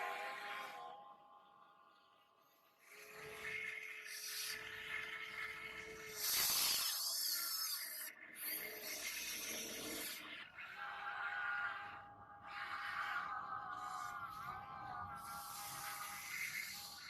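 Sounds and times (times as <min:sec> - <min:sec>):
small motor whine: 0:02.8 - 0:10.4, 0:15.1 - 0:17.0.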